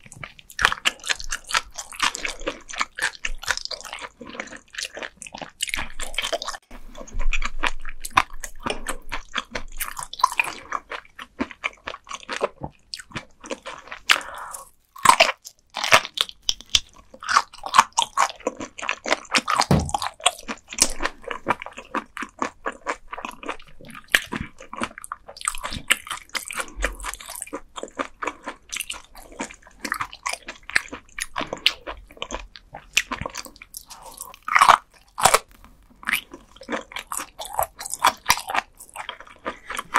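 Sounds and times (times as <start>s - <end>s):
crunchy chewing of fish: 0.0s - 39.9s.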